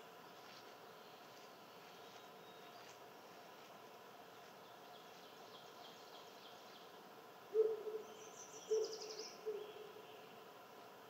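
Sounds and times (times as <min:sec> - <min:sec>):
small songbirds singing: 0:04.4 - 0:07.0, 0:08.0 - 0:10.5.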